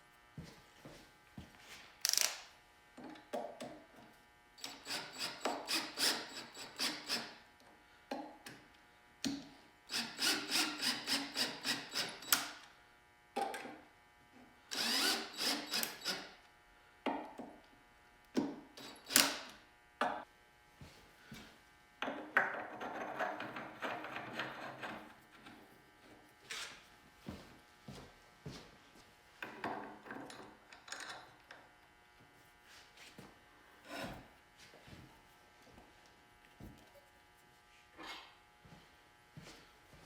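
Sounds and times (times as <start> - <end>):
hand tool scraping strokes: 33.8 - 34.3.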